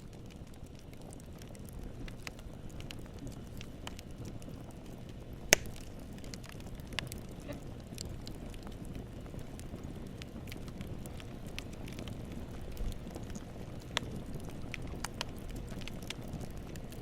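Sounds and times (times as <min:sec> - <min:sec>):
campfire flame rushing: 0:00.0 - 0:17.0
wood crackling: 0:00.0 - 0:17.0
wood popping snap: 0:05.5 - 0:07.1.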